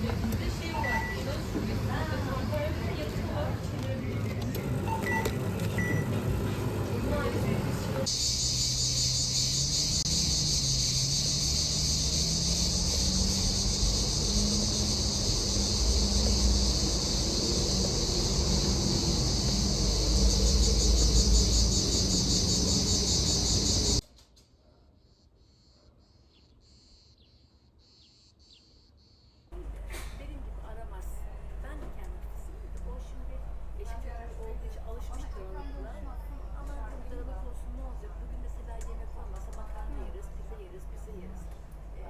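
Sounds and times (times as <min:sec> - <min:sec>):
faint chirps: 0:08.0 - 0:24.0
hum rising in pitch: 0:08.1 - 0:24.0
insects shrilling: 0:08.1 - 0:24.0.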